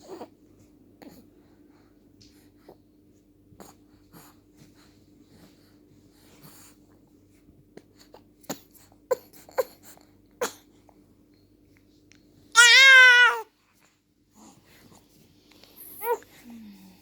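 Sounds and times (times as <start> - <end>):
faint steady hum: 0.0 - 17.0
baby grunting and squeaking: 12.6 - 13.4
baby squealing: 12.6 - 13.4.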